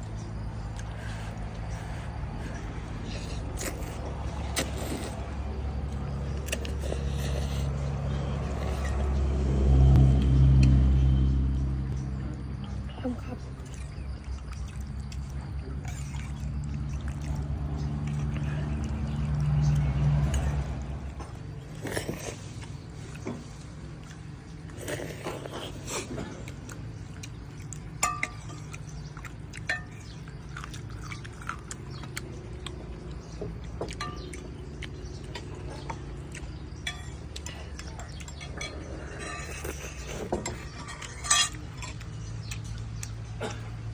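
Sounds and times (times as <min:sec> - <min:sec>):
low rumble: 0:07.4 - 0:14.2
dishes and utensils clinking: 0:28.0 - 0:28.9, 0:29.6 - 0:30.7, 0:33.7 - 0:34.6, 0:36.8 - 0:42.7.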